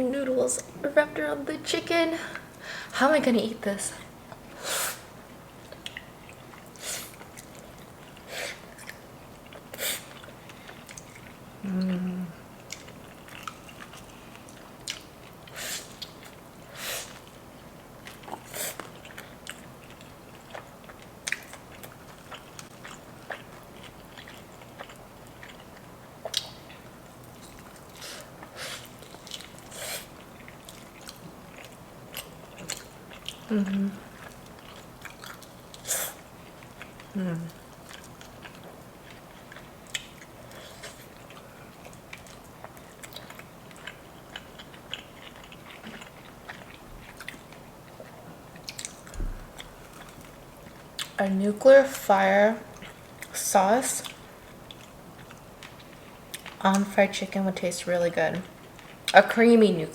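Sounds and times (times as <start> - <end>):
biting and chewing food: 5.2 - 51.2
closed-mouth hum: 11.6 - 12.6, 37.0 - 37.7.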